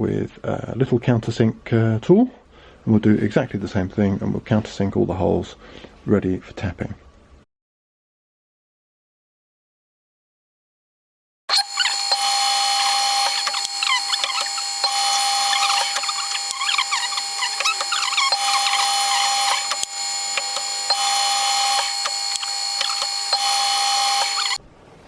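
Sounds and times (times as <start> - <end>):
lathe drill squealing: 11.5 - 24.6
sharp clicks: 11.5 - 24.6.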